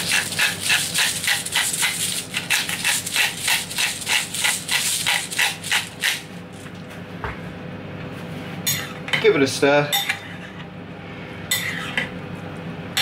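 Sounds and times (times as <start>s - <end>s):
pepper grinder grinding: 0.0s - 6.3s.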